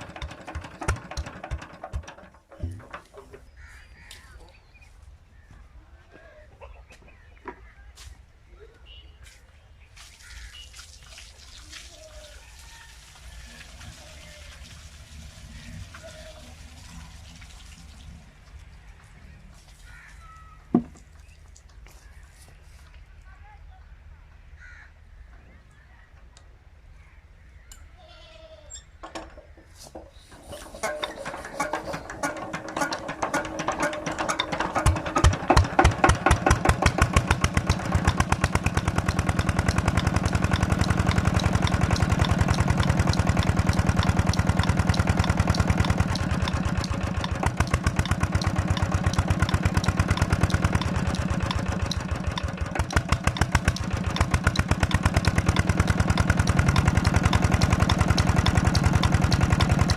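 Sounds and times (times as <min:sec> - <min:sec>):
single-cylinder diesel engine starting: 0:00.0 - 0:03.3, 0:29.8 - 0:59.9.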